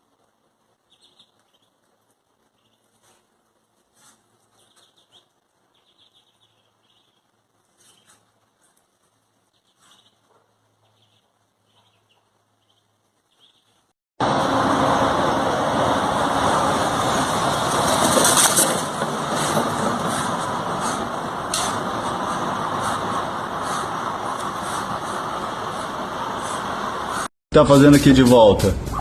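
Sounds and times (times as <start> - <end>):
ducklings peeping: 0.8 - 3.3, 3.9 - 13.9, 20.1 - 27.3
loud rushing noise: 14.2 - 29.0.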